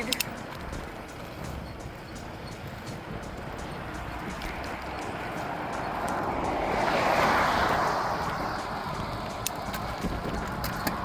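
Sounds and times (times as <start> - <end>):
light clicks: 0.0 - 3.4
wind rumbling on microphone: 0.0 - 11.0
car passing by: 2.6 - 11.0.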